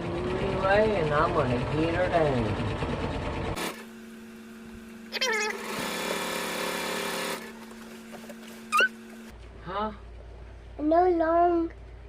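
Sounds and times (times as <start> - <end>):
sewing machine stitching: 5.4 - 7.7.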